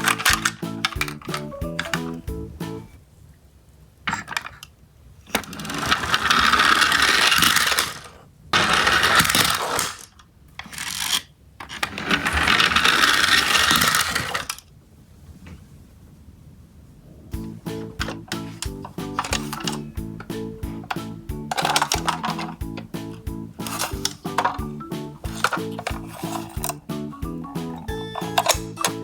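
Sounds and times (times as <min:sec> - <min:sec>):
toy trucks rattling down track: 0:00.0 - 0:02.2, 0:05.3 - 0:14.7, 0:17.8 - 0:26.8, 0:27.8 - 0:29.0.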